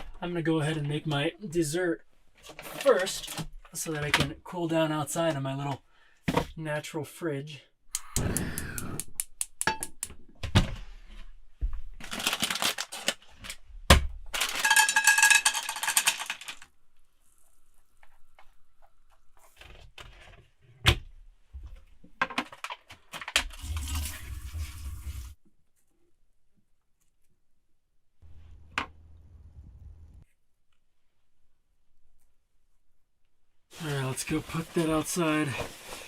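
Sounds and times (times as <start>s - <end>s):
stirring or rattling: 14.4s - 16.7s.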